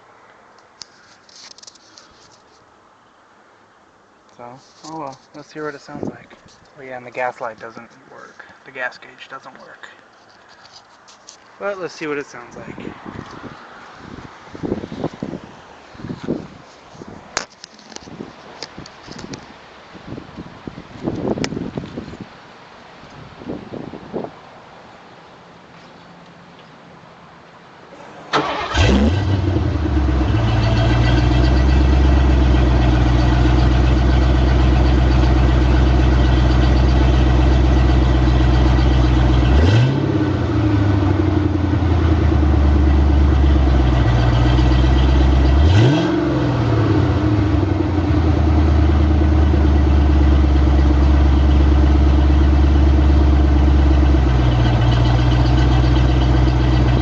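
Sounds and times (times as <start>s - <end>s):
car engine starting and idling: 27.9s - 57.0s
engine revving: 28.4s - 57.0s.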